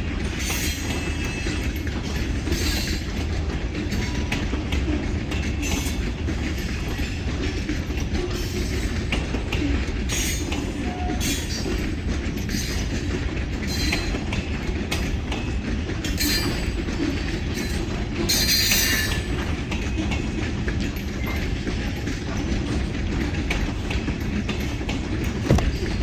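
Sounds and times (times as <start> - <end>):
train wheels rumbling on rail: 0.0 - 26.0
wheel squeals and clacks: 0.3 - 26.0.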